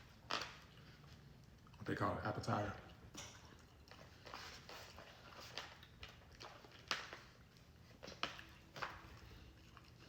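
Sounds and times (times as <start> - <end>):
wet eating smacks and clicks: 0.2 - 1.8.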